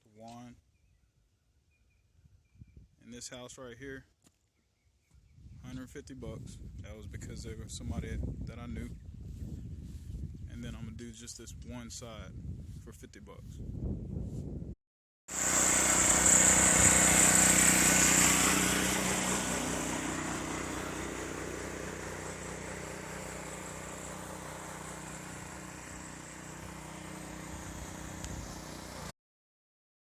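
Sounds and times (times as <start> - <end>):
pressure washer motor hum: 15.3 - 29.1
water spray hissing: 15.3 - 29.1.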